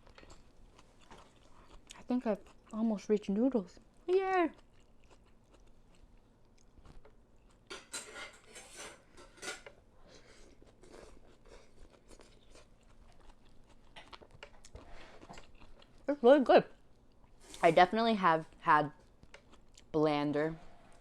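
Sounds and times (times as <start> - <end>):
slurping and chewing noodles: 10.0 - 16.0.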